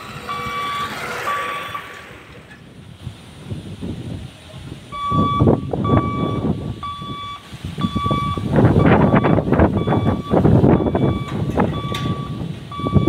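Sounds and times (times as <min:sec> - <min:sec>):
level crossing warning beeper: 0:00.0 - 0:02.0, 0:04.8 - 0:13.0
train rumble and wheel clatter: 0:00.0 - 0:13.0.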